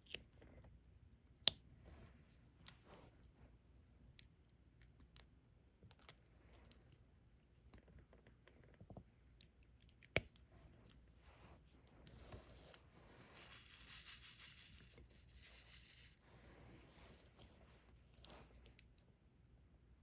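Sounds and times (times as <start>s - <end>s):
rustling rattle: 13.2s - 16.3s.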